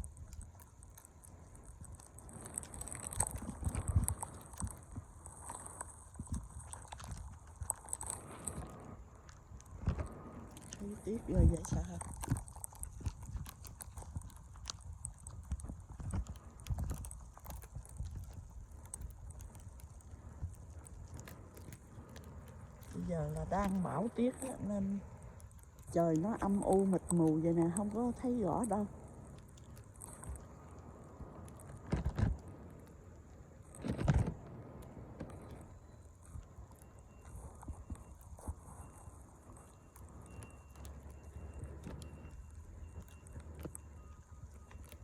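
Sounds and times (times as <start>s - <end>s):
blizzard wind buffeting microphone: 0.0s - 40.4s
crunching clicks: 0.0s - 45.0s
storm wind on microphone: 1.7s - 21.3s.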